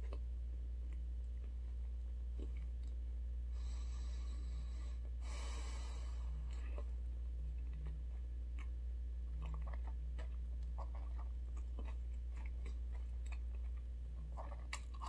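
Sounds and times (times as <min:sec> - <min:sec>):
steady low hum: 0:00.0 - 0:15.0
person chewing: 0:06.4 - 0:15.0.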